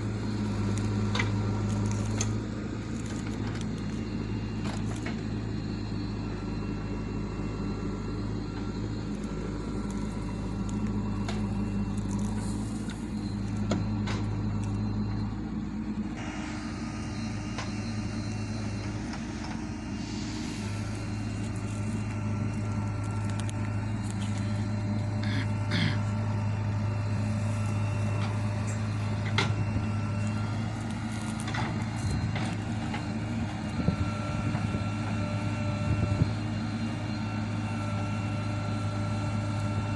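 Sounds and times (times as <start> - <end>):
backhoe diesel engine running: 0.0 - 39.9
hiss: 16.2 - 21.6.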